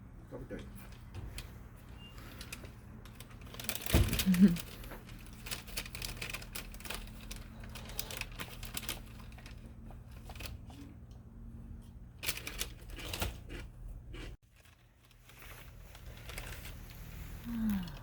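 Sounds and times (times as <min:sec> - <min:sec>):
burning wood crackling and popping: 0:02.2 - 0:10.8.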